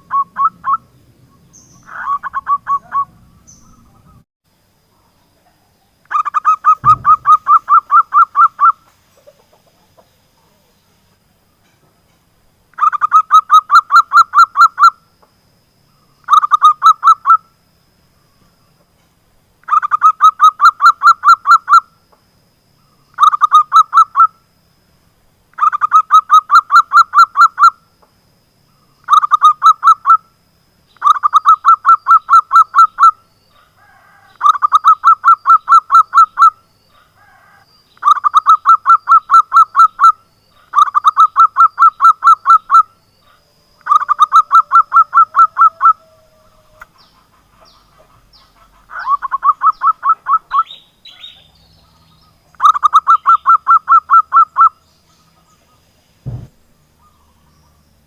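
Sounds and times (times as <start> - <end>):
dove calling in staccato bursts: 1.6 - 4.2, 6.0 - 10.2, 12.7 - 15.1, 16.2 - 17.5, 19.6 - 22.0, 23.0 - 24.4, 25.5 - 27.9, 28.9 - 30.3, 31.0 - 58.0.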